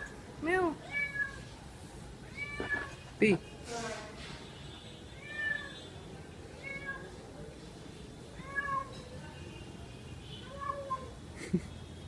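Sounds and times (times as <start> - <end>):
cat meowing: 0.8 - 1.4, 2.3 - 3.0, 5.2 - 5.8, 6.6 - 7.2, 8.4 - 9.0, 10.4 - 11.2.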